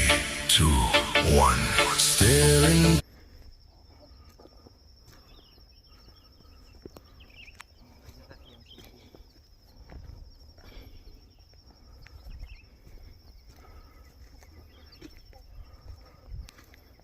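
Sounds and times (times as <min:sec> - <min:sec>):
pop song: 0:00.0 - 0:03.0
faint bird chirps: 0:03.6 - 0:17.0.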